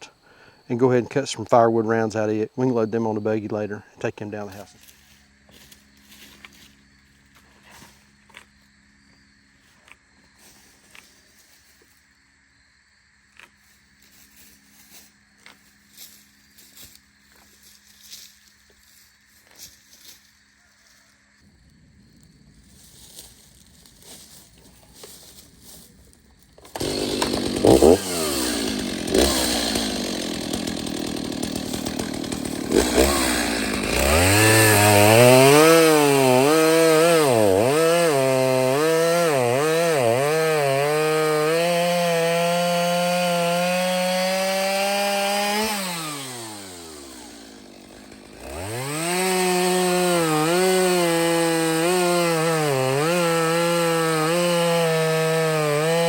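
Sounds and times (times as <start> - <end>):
chainsaw cutting wood: 1.7 - 8.6, 13.4 - 18.6, 26.6 - 56.0.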